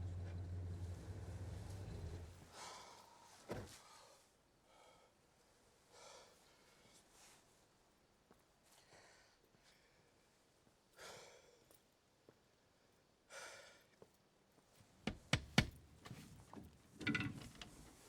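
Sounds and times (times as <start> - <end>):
sharp knocks: 15.1 - 15.8.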